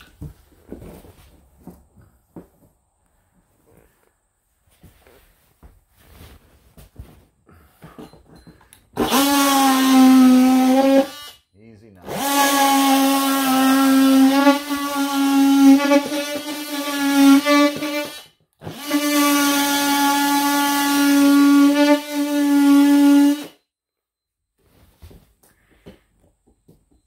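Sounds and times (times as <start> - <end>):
electric drill running: 9.0 - 11.4, 12.0 - 23.6.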